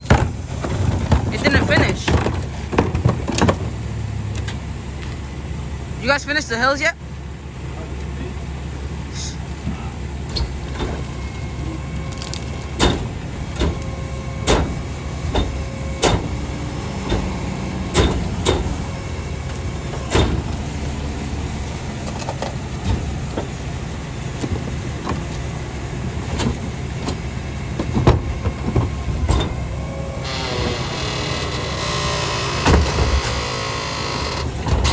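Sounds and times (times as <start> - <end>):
sharp knocks and bangs: 0.0 - 3.8, 12.7 - 21.0, 22.1 - 30.9, 31.6 - 33.6
garbage truck engine running: 0.0 - 34.9.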